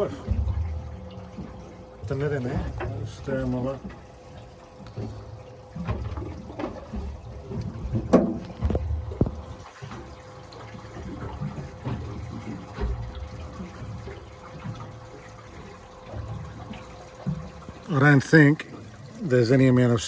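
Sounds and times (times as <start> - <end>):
faint steady hum: 0.0 - 20.0
fish splashing in water tank: 0.0 - 20.0
knocks on tank: 8.0 - 9.3.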